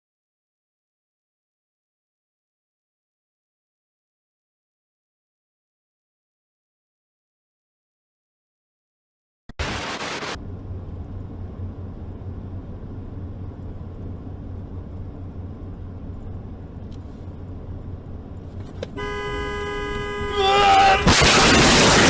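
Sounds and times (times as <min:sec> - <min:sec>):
car engine and road rumble: 0:09.6 - 0:22.0.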